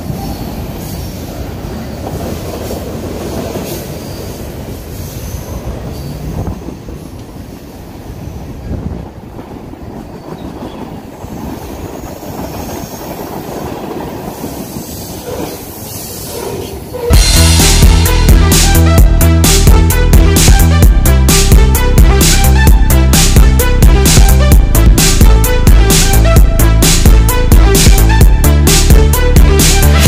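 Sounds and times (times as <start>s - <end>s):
steel wheels running on rails: 0.0s - 17.1s.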